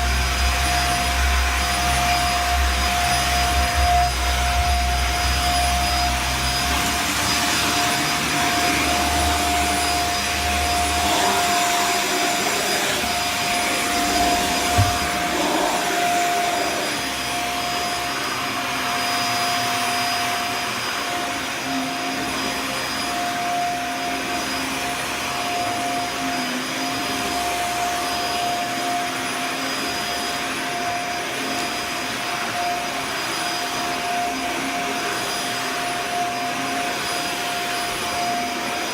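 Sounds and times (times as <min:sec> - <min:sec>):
vacuum cleaner on carpet: 0:00.0 - 0:38.9
knock: 0:14.7 - 0:15.1.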